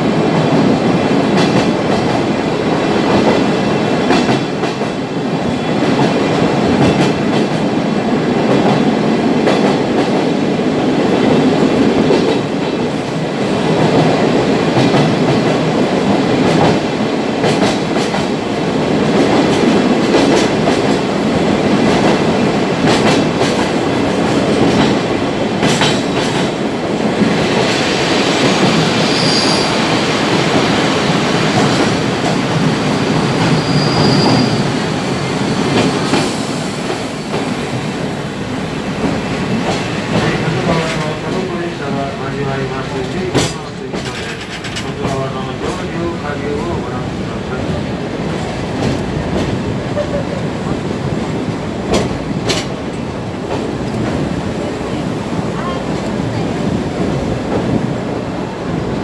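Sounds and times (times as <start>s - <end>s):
train cars rumbling: 0.0s - 59.0s
wheels clacking over rail joints: 0.2s - 7.8s, 11.0s - 27.8s, 42.8s - 58.0s
high wheel squeal: 28.7s - 30.2s, 33.2s - 37.3s.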